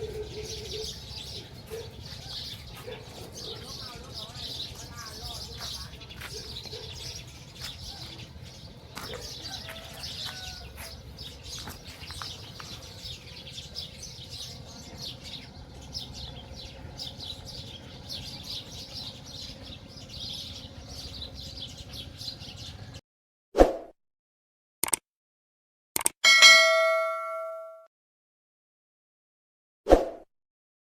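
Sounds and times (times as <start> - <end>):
lower bird calls: 0.0 - 23.0
small birds chirping: 0.0 - 23.0.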